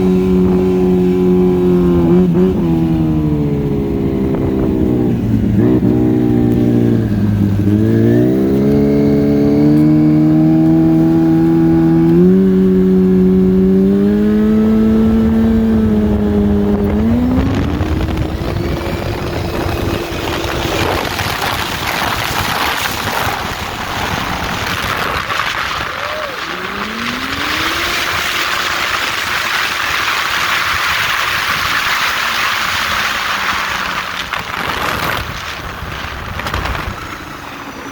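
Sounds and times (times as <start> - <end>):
snowmobile engine accelerating: 0.0 - 37.9
loud rushing noise: 16.1 - 37.9.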